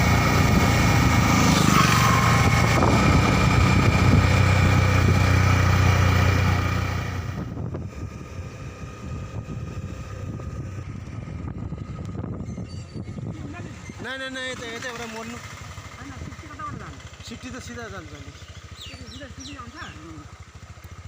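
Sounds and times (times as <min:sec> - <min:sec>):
motorcycle engine: 0:00.0 - 0:21.0
wind on microphone: 0:02.1 - 0:05.6, 0:07.1 - 0:14.0.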